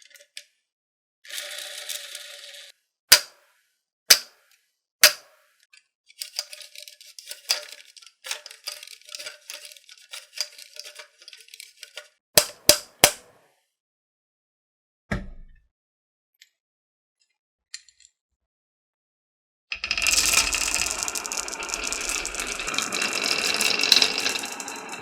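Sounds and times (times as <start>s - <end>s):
marbles rattling along track: 1.3s - 2.7s, 6.2s - 12.1s, 19.7s - 25.0s
marbles clacking on wooden track: 19.7s - 25.0s.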